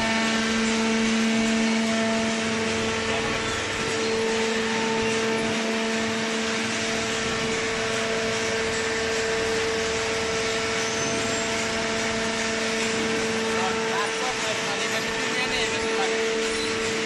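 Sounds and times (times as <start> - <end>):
hydraulic pump motor humming: 0.0 - 17.0.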